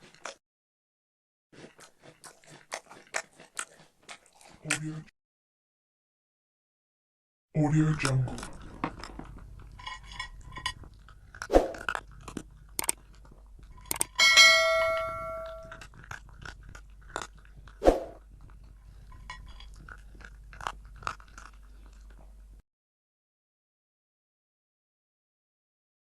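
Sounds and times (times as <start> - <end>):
clicks and crunching: 8.0 - 14.2
bell-like ring: 14.2 - 15.8.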